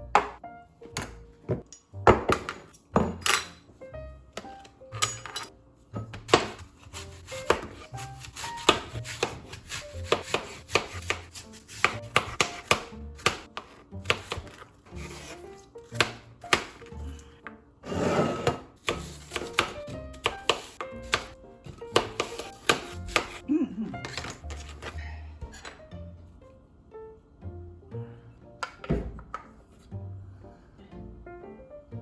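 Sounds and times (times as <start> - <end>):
knife chopping on cutting board: 6.0 - 17.1, 18.2 - 23.4
knife scraping board: 6.3 - 12.4, 13.6 - 15.5, 17.9 - 19.7.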